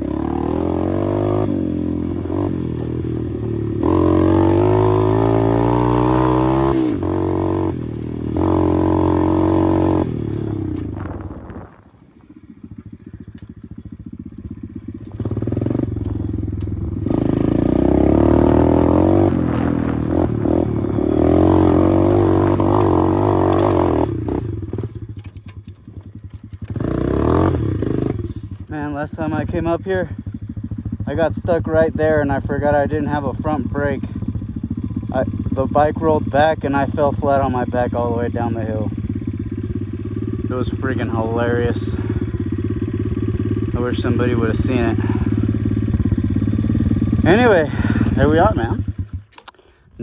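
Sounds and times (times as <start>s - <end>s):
motorbike engine revving: 0.0s - 49.8s.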